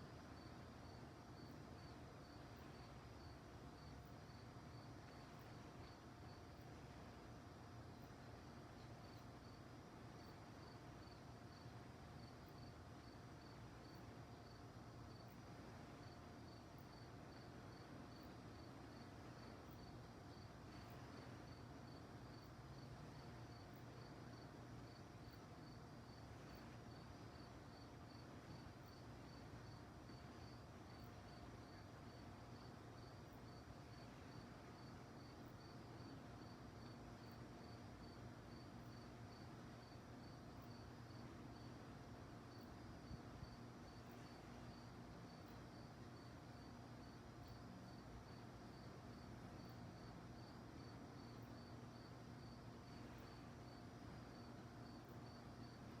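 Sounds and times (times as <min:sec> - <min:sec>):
crickets chirping: 0:00.0 - 0:56.0
faint steady hum: 0:00.0 - 0:56.0
low hiss: 0:00.0 - 0:56.0.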